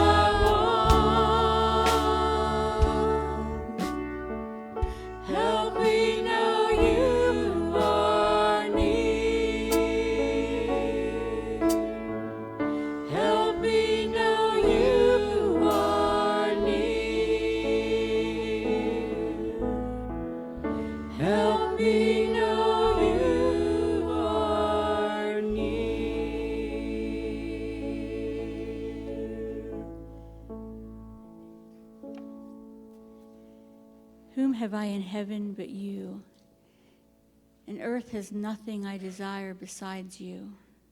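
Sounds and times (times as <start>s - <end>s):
voices singing over chords: 0.0s - 30.5s.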